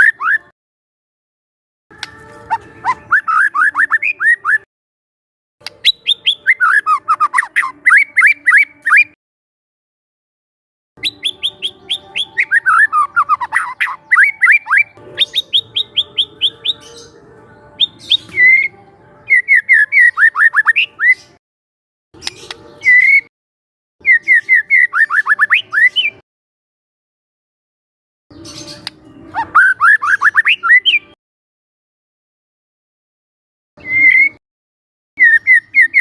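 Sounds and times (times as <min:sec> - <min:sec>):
bird chips and whistles: 0:00.0 - 0:00.5, 0:02.0 - 0:04.6, 0:05.6 - 0:09.2, 0:11.0 - 0:17.1, 0:17.8 - 0:18.7, 0:19.3 - 0:21.4, 0:22.2 - 0:23.3, 0:24.0 - 0:26.2, 0:28.3 - 0:31.1, 0:33.8 - 0:34.4, 0:35.2 - 0:36.0.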